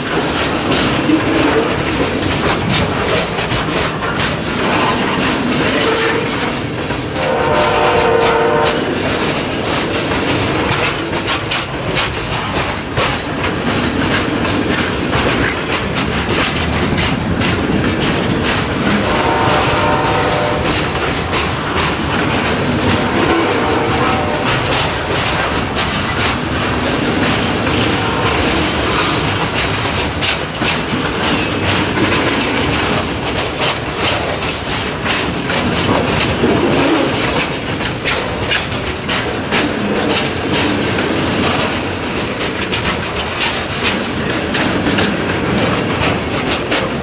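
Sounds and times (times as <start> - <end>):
freight cars rumbling: 0.0 - 47.0
wheels clattering over rail joints: 0.0 - 47.0
train horn: 5.7 - 6.5, 7.2 - 9.1, 18.9 - 21.3, 22.9 - 25.2, 27.9 - 28.9.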